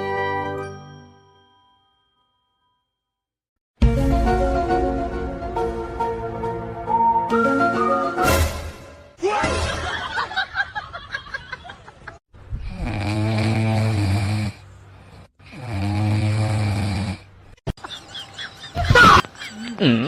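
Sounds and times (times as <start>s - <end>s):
person snoring: 12.6s - 17.3s.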